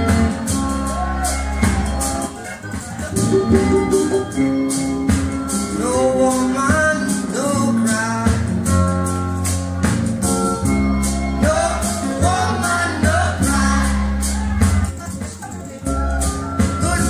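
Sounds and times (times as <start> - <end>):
song over loudspeakers: 0.0 - 8.6, 11.2 - 15.0.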